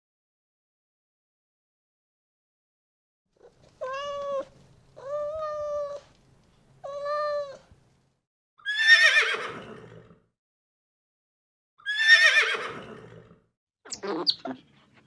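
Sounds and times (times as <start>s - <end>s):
cat meowing: 3.4s - 6.1s, 6.8s - 7.7s
horse whinny: 8.6s - 10.2s, 11.8s - 13.4s.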